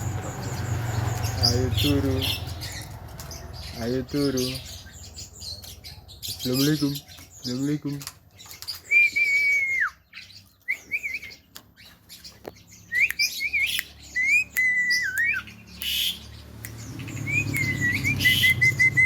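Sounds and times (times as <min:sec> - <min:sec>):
myna whistling and chirping: 0:08.7 - 0:19.0.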